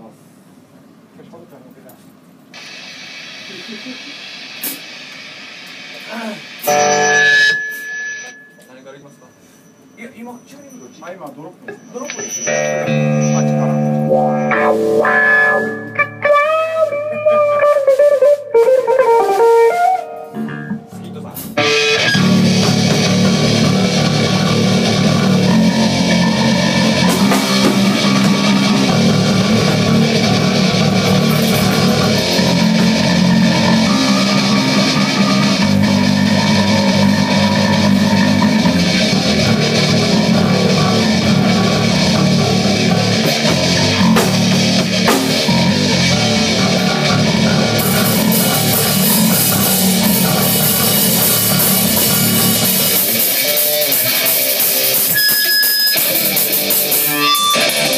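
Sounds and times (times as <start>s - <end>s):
drum kit: 5.6s - 8.4s, 12.1s - 57.9s
electric guitar in drop tuning: 6.5s - 8.7s, 12.1s - 57.9s.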